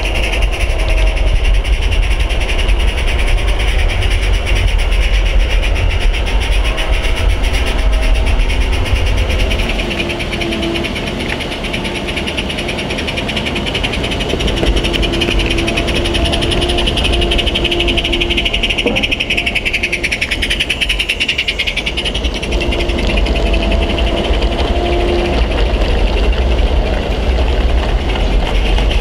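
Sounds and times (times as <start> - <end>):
train rumbling: 0.0 - 29.0
brief steady tones: 17.2 - 20.4.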